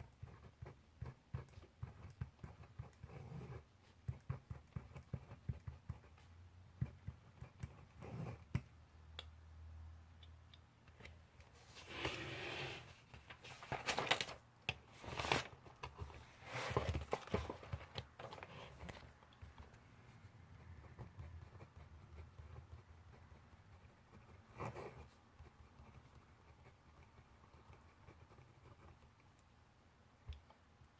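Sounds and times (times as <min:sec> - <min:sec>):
pencil writing on paper: 0:00.0 - 0:08.6, 0:20.3 - 0:29.2.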